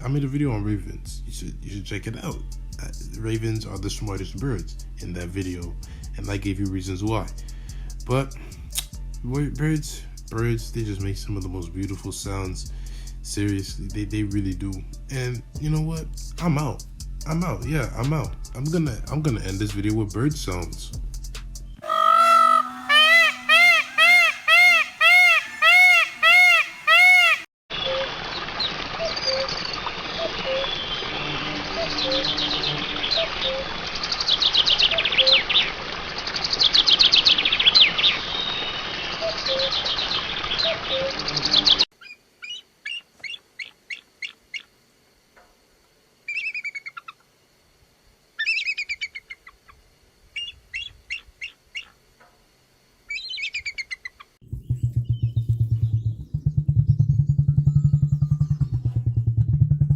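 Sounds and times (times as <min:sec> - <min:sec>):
music with deep bass: 0:02.3 - 0:21.7, 0:54.4 - 0:59.9
birds chirping and trilling: 0:21.8 - 0:27.5.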